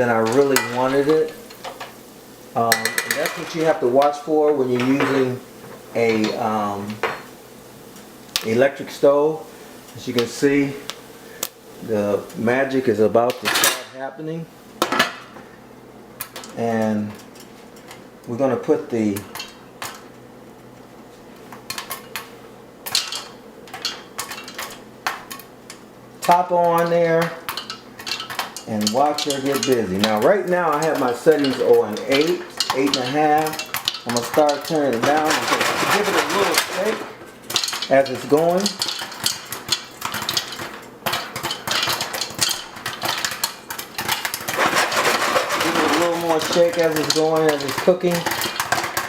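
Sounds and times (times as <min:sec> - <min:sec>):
pot scraping on burner: 0:00.0 - 0:07.4, 0:27.4 - 0:49.0
popcorn kernels popping: 0:00.0 - 0:08.7, 0:19.1 - 0:20.2, 0:21.4 - 0:49.0.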